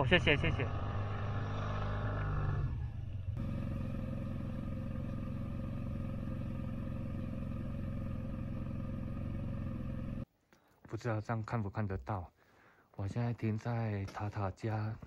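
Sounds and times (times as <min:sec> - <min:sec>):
scooter engine running: 0:03.3 - 0:10.2.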